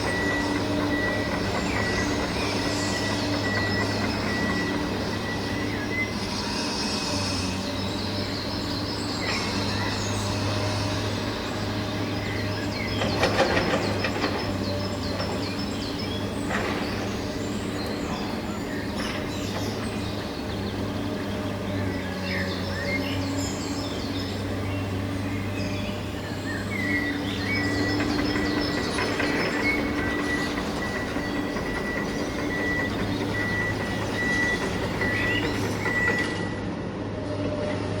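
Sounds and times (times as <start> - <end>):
small electric motors running: 0.0 - 36.4
birds chirping: 0.0 - 36.5
rattling clatter: 12.4 - 21.7, 25.9 - 36.5.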